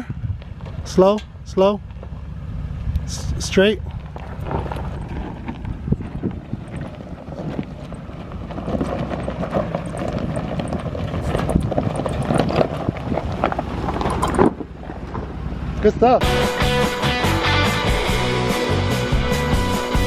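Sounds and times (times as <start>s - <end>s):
rocks and gravel crunching under tyres: 0.0s - 16.0s
truck engine running low: 0.0s - 20.0s.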